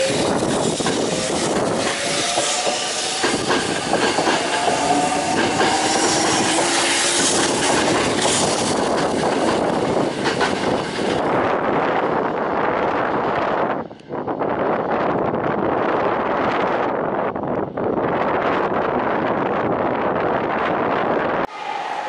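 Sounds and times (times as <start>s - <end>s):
train wheels clattering: 0.0s - 11.3s.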